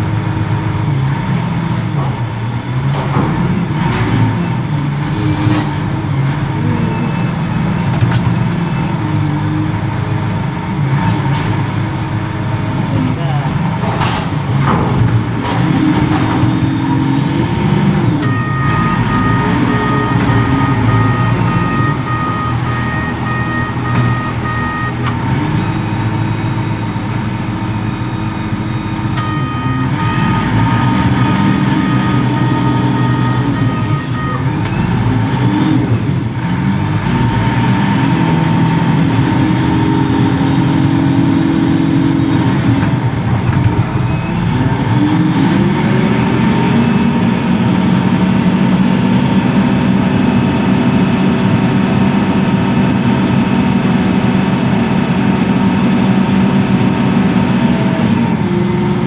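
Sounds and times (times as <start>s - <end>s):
diesel engine revving: 0.0s - 59.0s
high-pitched warning alarm beeps: 18.2s - 25.0s, 27.8s - 30.9s, 31.8s - 34.4s, 43.8s - 44.7s.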